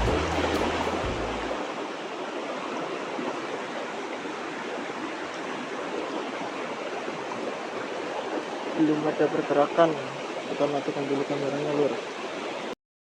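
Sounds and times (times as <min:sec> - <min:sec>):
music track: 0:00.0 - 0:01.7
river water rushing over rocks: 0:00.0 - 0:12.8.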